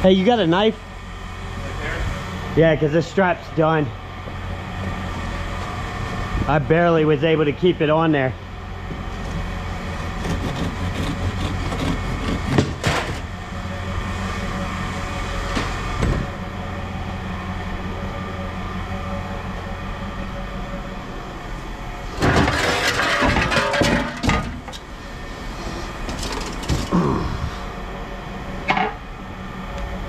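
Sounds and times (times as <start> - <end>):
low engine drone: 0.0 - 30.0
scrap metal knocking: 22.2 - 24.8
scrap rattling clatter: 22.2 - 24.9, 25.7 - 27.1.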